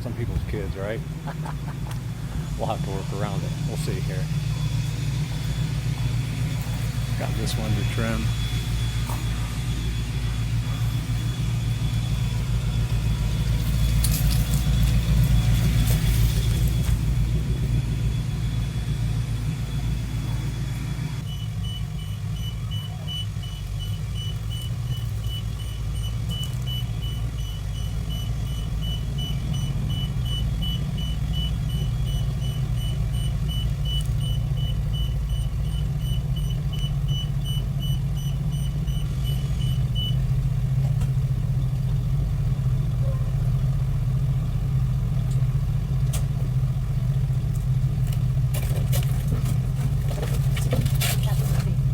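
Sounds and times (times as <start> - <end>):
vehicle engine rumbling: 0.0 - 51.9.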